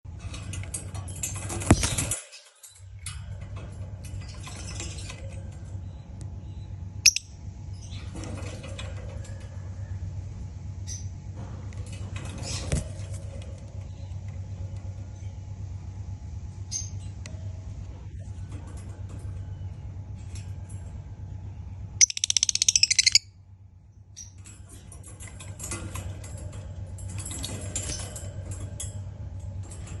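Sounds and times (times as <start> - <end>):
steady low hum: 0.1 - 30.0
bird clicks and rustles in cage: 0.2 - 6.3, 7.9 - 9.6, 11.7 - 15.0, 18.2 - 21.0, 24.1 - 30.0
lovebird harsh chattering: 22.0 - 23.2
bird squeak: 22.0 - 23.3.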